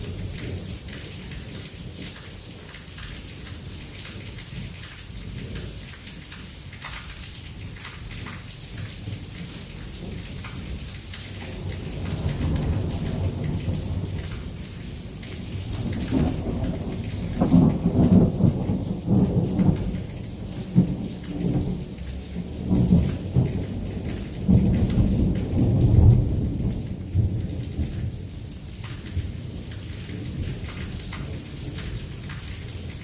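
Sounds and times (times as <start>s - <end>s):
heavy rain falling: 0.0s - 33.0s
rolling thunder: 11.4s - 28.3s.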